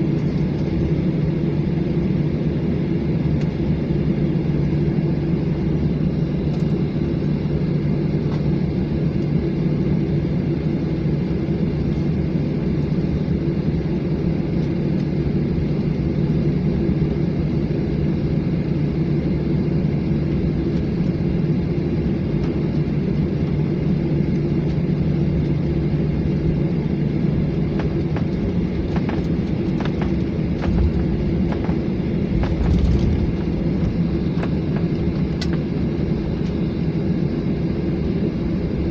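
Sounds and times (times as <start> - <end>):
jet engine rumble in cabin: 0.0 - 38.9.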